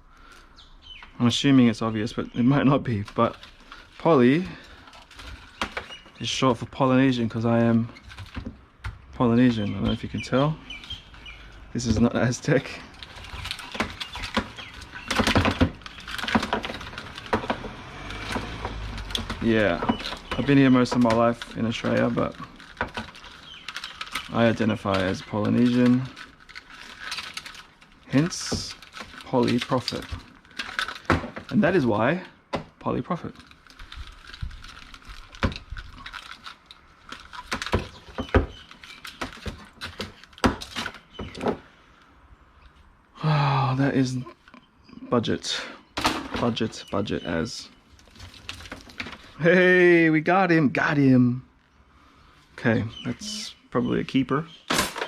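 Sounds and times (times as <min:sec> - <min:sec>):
plastic items clicking and clacking: 0:01.0 - 0:41.7, 0:46.0 - 0:49.5, 0:54.7 - 0:55.0
plastic plugs and metal rattling: 0:02.0 - 0:06.6, 0:07.2 - 0:41.7, 0:48.0 - 0:49.4, 0:54.7 - 0:55.0.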